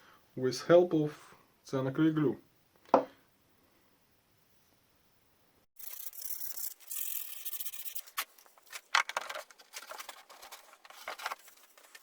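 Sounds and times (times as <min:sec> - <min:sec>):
plywood parts scraping: 0:05.8 - 0:12.0.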